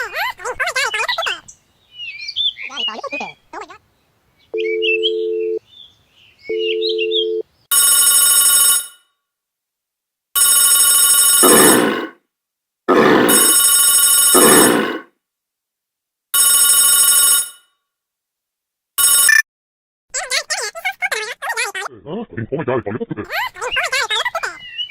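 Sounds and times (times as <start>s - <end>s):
loud electronic telephone rings: 6.5s - 9.1s, 10.4s - 12.1s, 13.0s - 15.0s, 16.4s - 17.8s, 19.0s - 19.4s.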